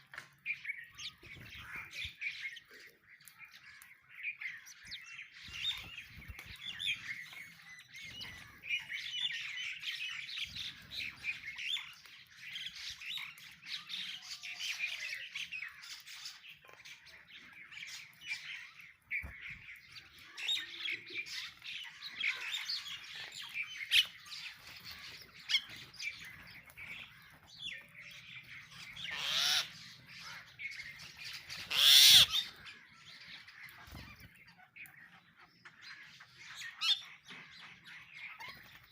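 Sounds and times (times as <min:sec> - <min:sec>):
sparrows chirping: 0:00.0 - 0:38.9
harsh bird squawks: 0:29.0 - 0:29.8, 0:31.6 - 0:32.6.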